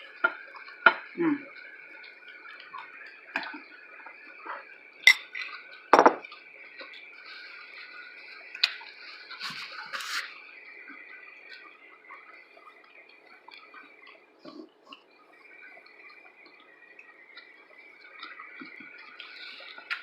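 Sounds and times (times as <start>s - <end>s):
utensils and dishes clinking: 5.1s - 6.3s.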